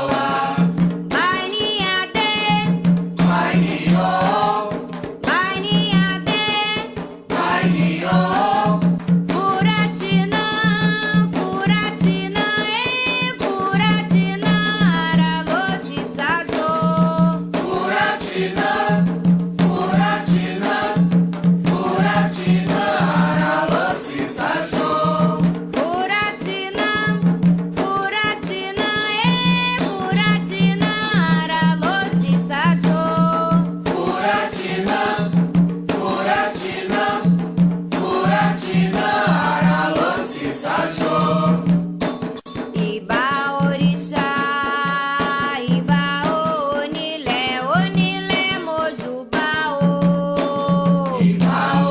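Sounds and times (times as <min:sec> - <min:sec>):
voices singing a chant: 0:00.0 - 0:00.8, 0:01.8 - 0:06.6, 0:07.3 - 0:12.2, 0:13.6 - 0:25.5, 0:28.8 - 0:41.8, 0:50.4 - 0:51.9
drums and percussion: 0:00.0 - 0:51.9.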